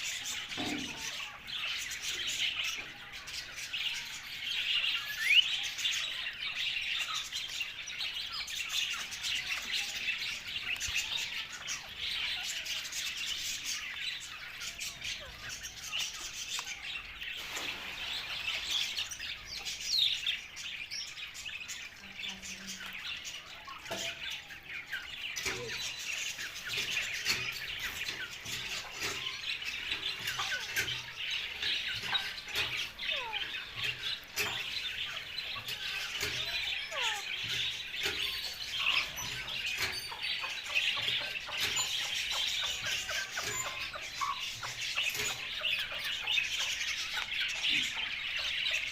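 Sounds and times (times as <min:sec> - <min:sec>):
parrot chattering and chirping: 0:22.3 - 0:48.9.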